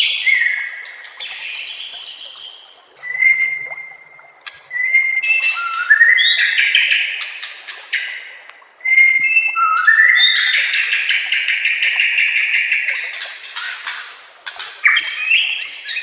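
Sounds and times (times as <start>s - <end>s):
bird singing whistled song: 0.0s - 7.3s, 8.8s - 13.0s, 14.8s - 16.0s.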